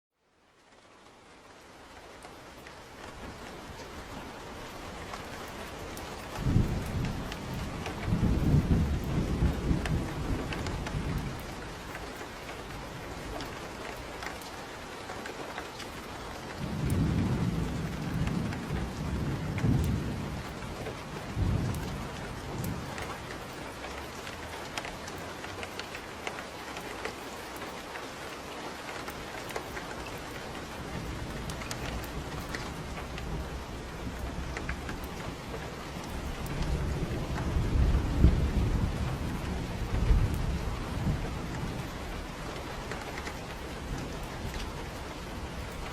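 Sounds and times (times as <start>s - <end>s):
steady rain: 0.1s - 45.9s
rolling thunder: 5.0s - 12.0s, 16.3s - 25.1s, 30.0s - 45.9s.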